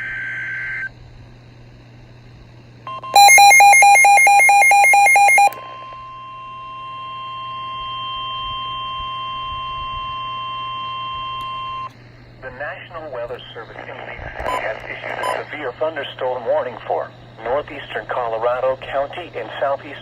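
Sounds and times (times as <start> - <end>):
rapid loud beeping: 2.9 - 7.8, 14.4 - 15.5
steady alarm tone: 2.9 - 11.9.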